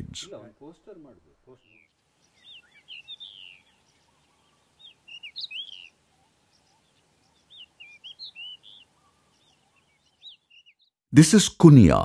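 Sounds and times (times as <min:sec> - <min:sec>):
faint background hiss: 0:00.0 - 0:10.6
songbird whistling: 0:01.6 - 0:06.0, 0:07.4 - 0:10.8.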